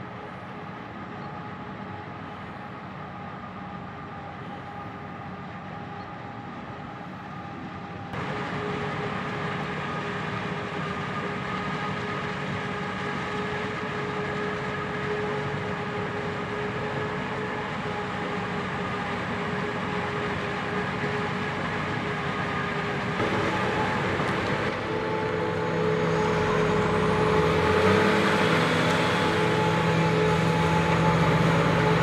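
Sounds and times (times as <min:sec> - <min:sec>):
constant machine whine: 0:00.0 - 0:32.0
heavy machinery engine running: 0:00.0 - 0:32.0.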